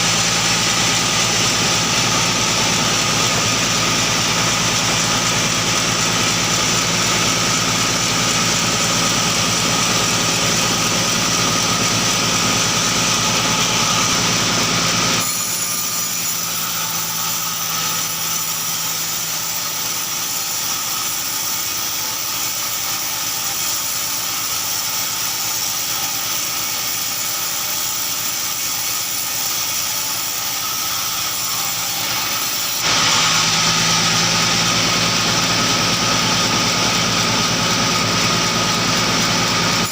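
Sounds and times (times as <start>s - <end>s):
engine drone: 0.0s - 15.5s, 32.8s - 39.9s
sawmill machinery running: 0.0s - 39.9s.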